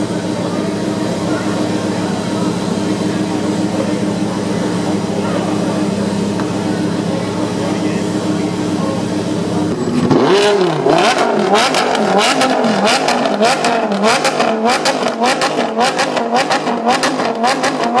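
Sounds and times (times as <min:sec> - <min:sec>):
car engine revving: 0:00.0 - 0:18.0
sharp exhaust cracks: 0:01.6 - 0:18.0.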